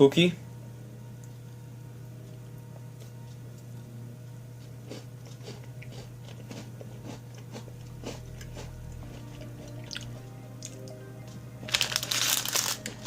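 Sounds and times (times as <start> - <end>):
low steady hum: 0.0 - 13.0
biscuit crunching: 11.6 - 13.0.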